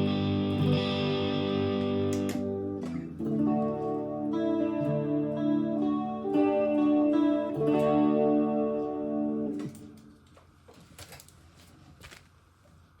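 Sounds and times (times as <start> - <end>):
electric guitar chords: 0.0 - 10.3.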